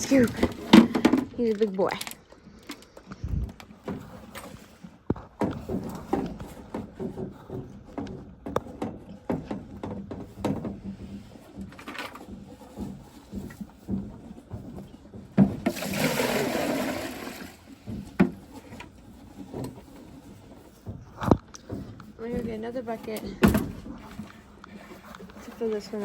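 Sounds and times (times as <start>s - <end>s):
knocks and clatters: 0.0s - 16.4s, 17.2s - 26.0s
water pouring into bucket: 15.6s - 17.7s.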